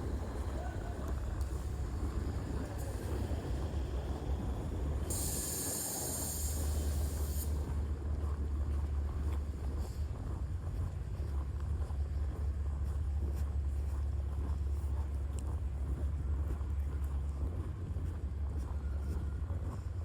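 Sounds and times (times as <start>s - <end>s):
city traffic rumble: 0.0s - 20.0s
hiss: 5.0s - 7.7s.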